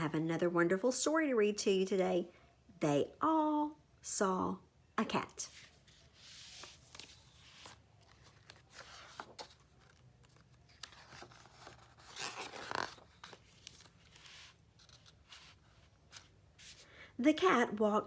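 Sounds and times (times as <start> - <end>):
paper pages rustling: 5.5 - 16.9.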